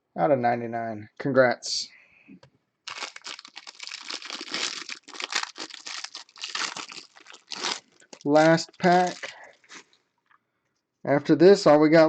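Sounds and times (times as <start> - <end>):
plastic wrapper crinkling: 2.9 - 10.0.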